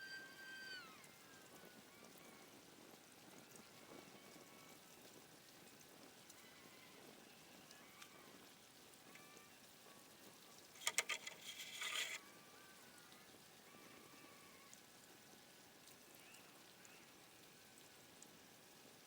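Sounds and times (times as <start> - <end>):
sharp clicks clattering: 10.8 - 12.2.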